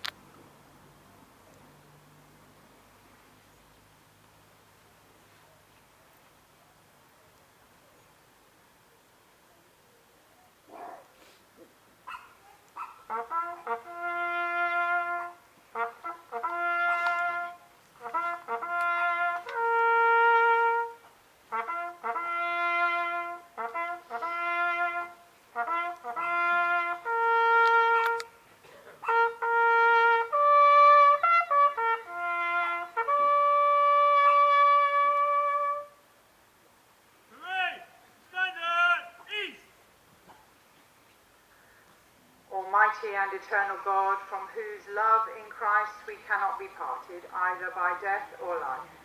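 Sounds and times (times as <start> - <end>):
bugle call: 12.8 - 36.0, 37.3 - 39.7.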